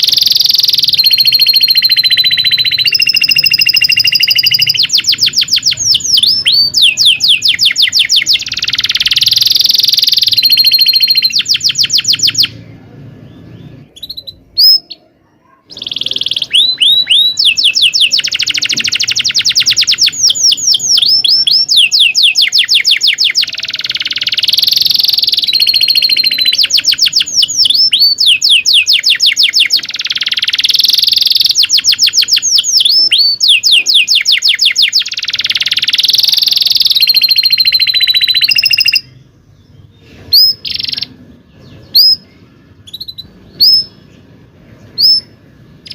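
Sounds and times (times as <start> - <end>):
canary singing trills: 0.0 - 45.9.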